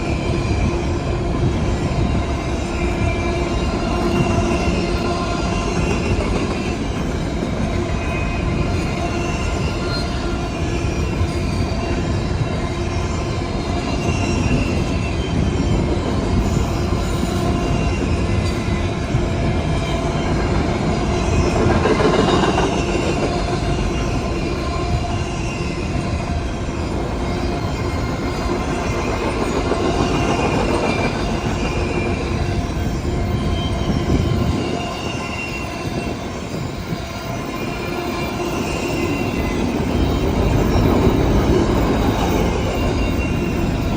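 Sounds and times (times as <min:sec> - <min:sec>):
freight train rolling past: 0:00.0 - 0:43.9
faint wheel squeal: 0:22.2 - 0:43.9.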